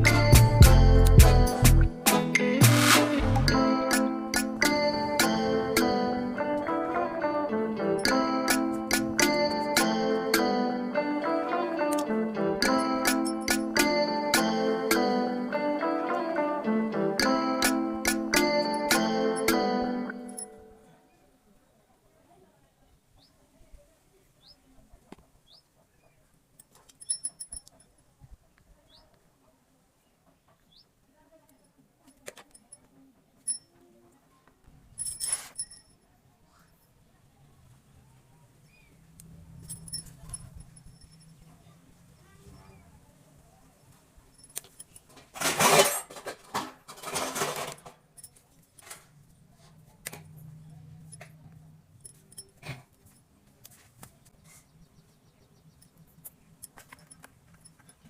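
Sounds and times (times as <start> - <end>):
handling clicks and taps: 17.6 - 19.6, 55.8 - 58.0
light metallic clicks and tinkles: 26.6 - 28.1, 35.0 - 36.1, 39.2 - 41.6, 44.3 - 45.2, 52.0 - 53.3, 55.7 - 58.0.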